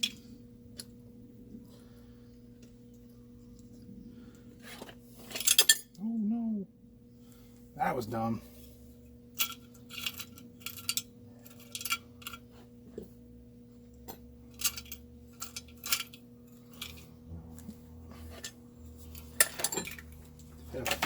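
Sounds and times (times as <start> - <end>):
metal tools clinking: 4.8 - 6.0, 9.4 - 12.5, 14.5 - 17.2, 18.3 - 21.0.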